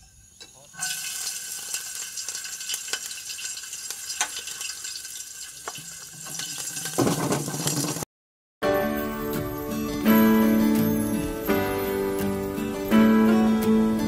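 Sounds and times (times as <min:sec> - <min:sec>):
food sizzling in hot oil: 0:00.0 - 0:08.0.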